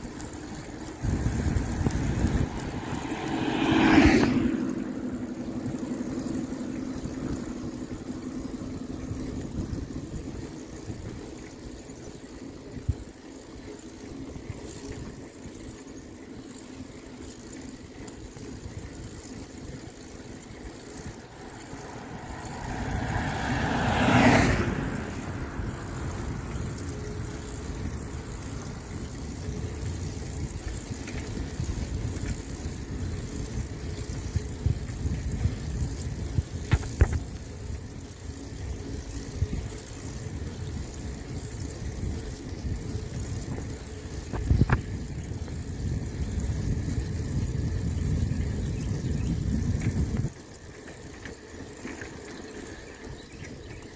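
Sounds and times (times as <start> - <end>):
car passing close by: 0.0 - 9.8, 20.0 - 29.8
low traffic rumble: 0.0 - 15.4, 16.3 - 53.9.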